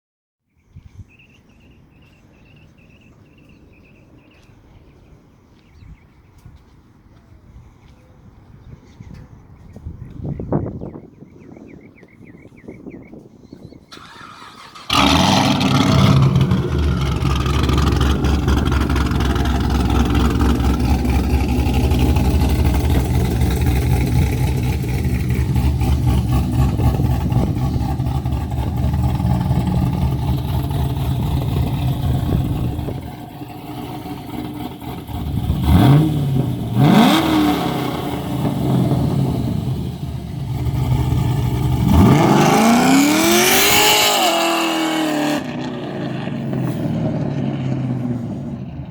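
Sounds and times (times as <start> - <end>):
car engine starting and idling: 13.9 - 48.9
engine revving: 14.0 - 48.9.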